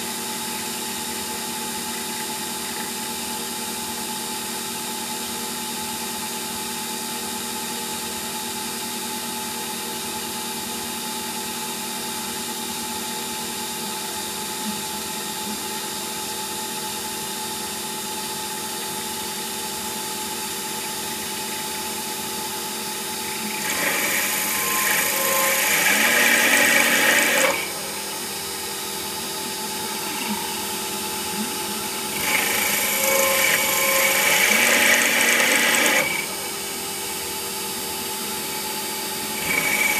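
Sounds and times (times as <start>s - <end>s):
lathe machine hum: 17.8s - 39.9s
lathe cutting hissing and scraping: 23.2s - 36.6s.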